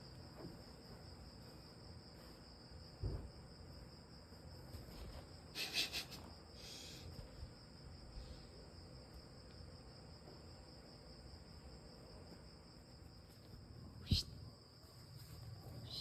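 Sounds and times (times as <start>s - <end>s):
crickets chirping: 0.0s - 16.0s
soft low thump: 3.0s - 3.5s.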